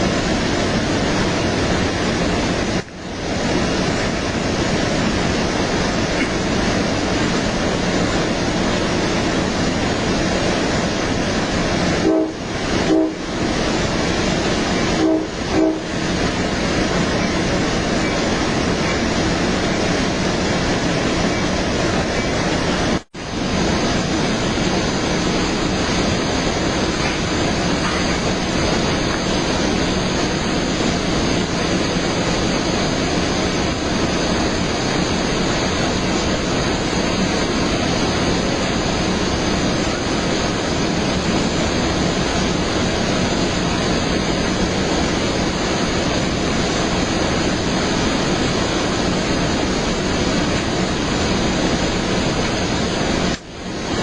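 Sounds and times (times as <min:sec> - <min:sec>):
moving train rumble: 0:00.0 - 0:54.0
train horn blasts: 0:12.0 - 0:13.4, 0:14.8 - 0:16.0.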